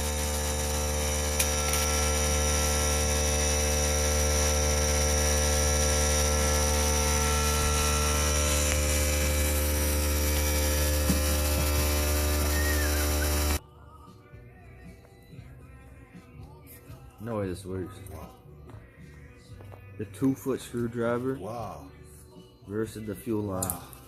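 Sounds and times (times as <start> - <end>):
low mechanical hum: 0.0 - 17.2.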